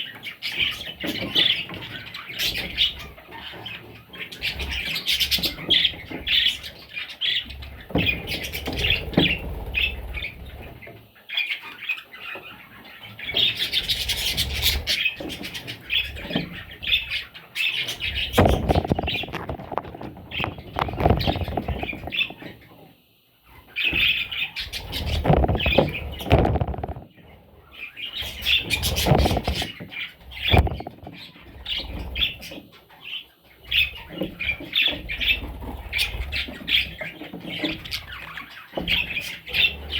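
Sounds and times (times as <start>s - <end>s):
budgerigars chirping and squawking: 0.0s - 22.8s, 23.4s - 39.9s
rustling movement: 17.9s - 22.6s, 24.7s - 27.4s, 28.2s - 31.3s.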